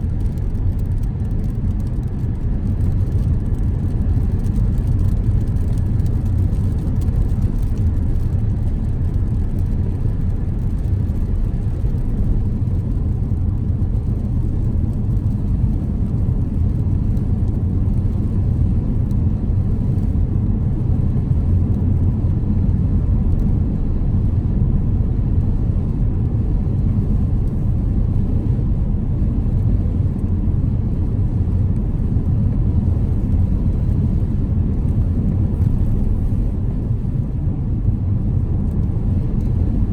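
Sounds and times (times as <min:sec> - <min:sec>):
tyre noise in a moving car: 0:00.0 - 0:39.9.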